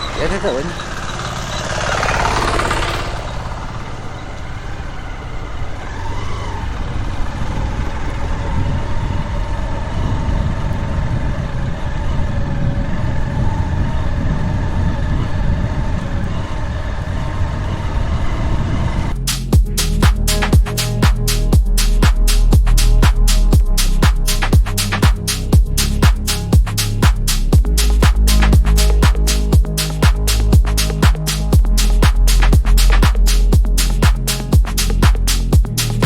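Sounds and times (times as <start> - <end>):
vehicle engine running: 0.0 - 12.4, 19.1 - 36.0
low road rumble: 0.0 - 36.0
rush of noise: 16.4 - 36.0.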